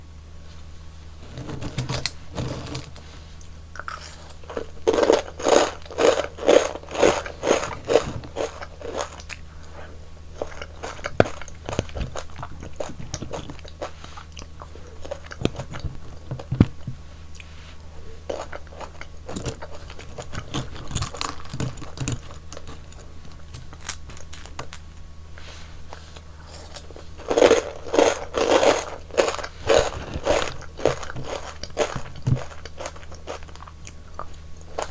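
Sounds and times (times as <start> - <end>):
chewing: 3.4 - 34.9
crisp crunching bites: 4.0 - 9.4, 26.5 - 34.9.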